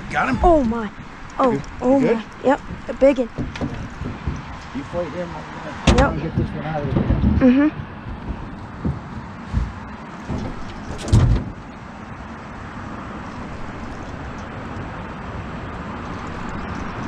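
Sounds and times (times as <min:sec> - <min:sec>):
steady background noise: 0:00.0 - 0:17.0
knocks on a boat: 0:02.6 - 0:04.6, 0:05.8 - 0:11.6.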